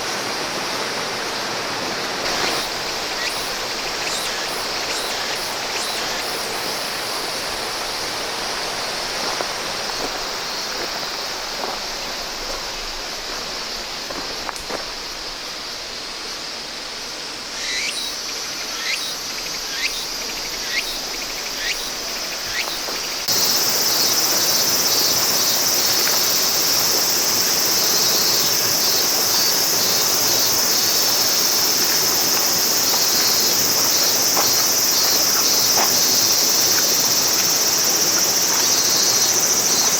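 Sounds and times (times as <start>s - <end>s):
stream flowing: 0.0s - 15.6s, 21.9s - 39.9s
insects shrilling: 2.2s - 7.5s.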